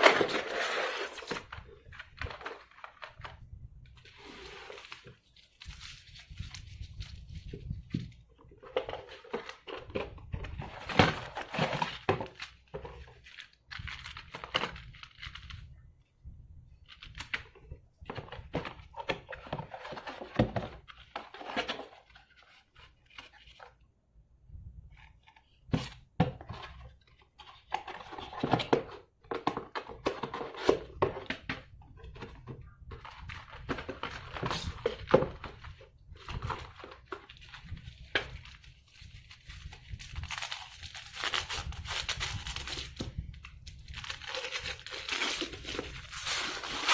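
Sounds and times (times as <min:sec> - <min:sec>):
packaging rustling and tearing: 0:00.0 - 0:03.4, 0:04.0 - 0:07.9, 0:33.0 - 0:46.9.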